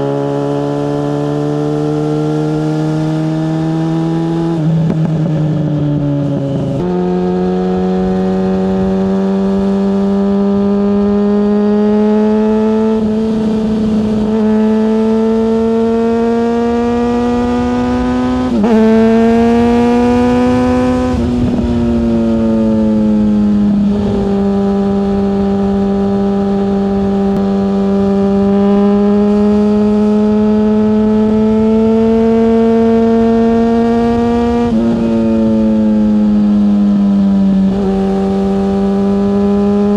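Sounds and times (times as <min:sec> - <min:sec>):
wind rush: 0:12.9 - 0:27.8.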